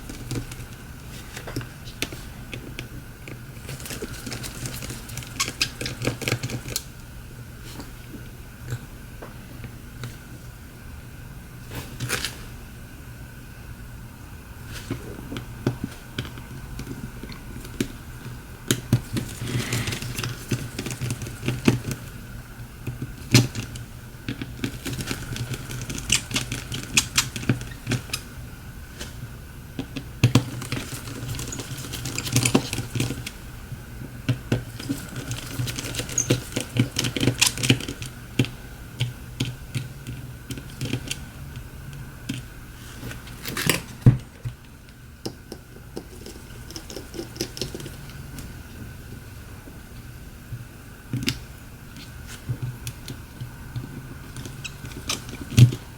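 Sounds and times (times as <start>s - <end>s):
steady low hum: 0.0s - 55.9s
small tools clicking and tapping: 29.9s - 33.4s.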